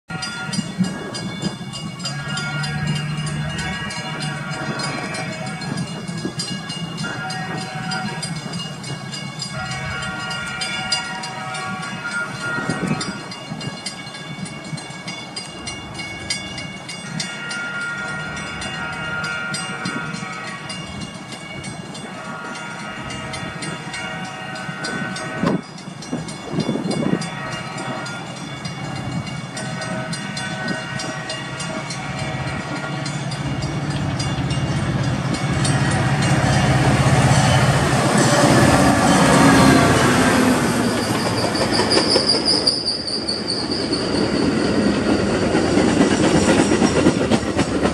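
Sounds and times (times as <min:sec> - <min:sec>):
diesel locomotive engine: 0:00.1 - 0:47.9.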